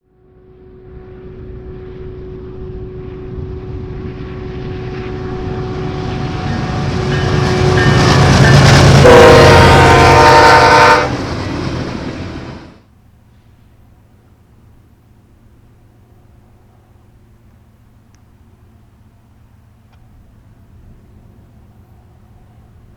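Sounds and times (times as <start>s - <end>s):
diesel locomotive engine rumble: 0.1s - 22.9s
train rail noise: 0.3s - 22.9s
train air horn blast: 4.5s - 12.8s.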